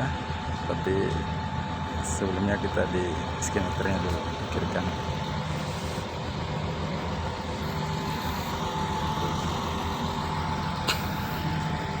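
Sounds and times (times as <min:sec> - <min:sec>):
heavy engine running: 0:00.0 - 0:12.0
thin steady whine: 0:00.0 - 0:12.0.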